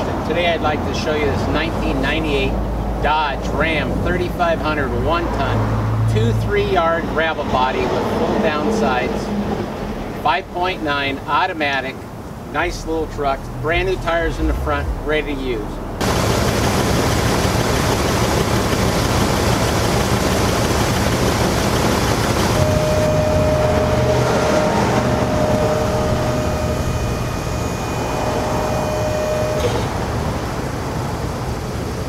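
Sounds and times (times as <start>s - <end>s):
steady whine: 9.8s - 32.0s
truck engine running: 12.4s - 32.0s.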